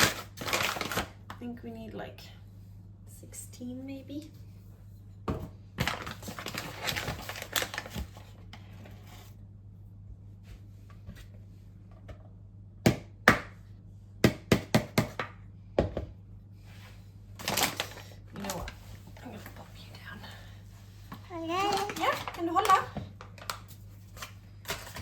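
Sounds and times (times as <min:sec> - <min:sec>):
utensils rustling and scraping bowl: 0:05.8 - 0:09.4, 0:16.7 - 0:25.0.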